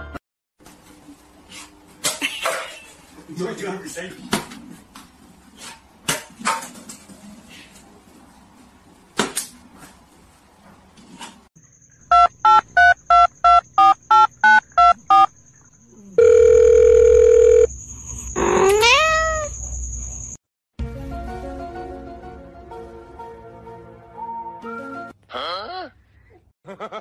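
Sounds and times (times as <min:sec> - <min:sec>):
short electronic beeps: 0:12.1 - 0:15.3
long steady beep: 0:16.2 - 0:18.2
cat meowing: 0:18.6 - 0:19.5
music: 0:20.8 - 0:25.2.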